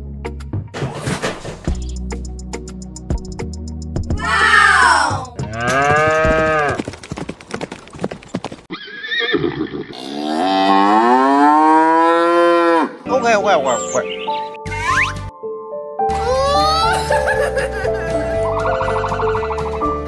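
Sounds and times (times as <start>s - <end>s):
cow mooing: 5.5s - 6.8s, 9.9s - 13.0s.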